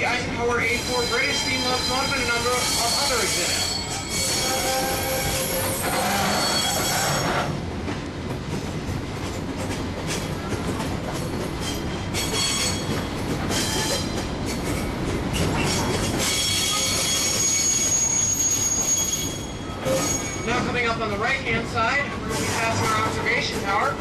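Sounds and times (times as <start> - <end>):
train wheels rumbling on rail: 0.0 - 24.0
high-pitched wheel squeals: 0.7 - 7.5, 11.6 - 12.9, 15.4 - 20.6.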